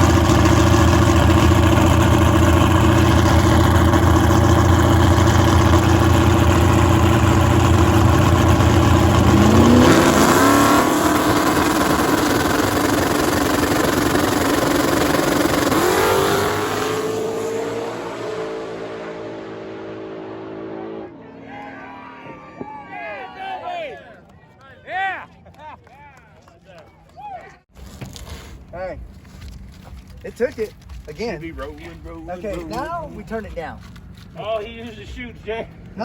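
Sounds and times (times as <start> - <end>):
drag race car engine revving: 0.0 - 22.9.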